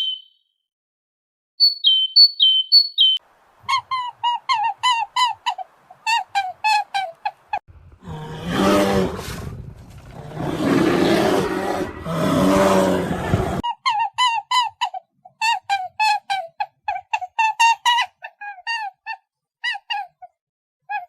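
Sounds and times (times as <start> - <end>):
rough roar-like animal call: 7.8 - 13.6.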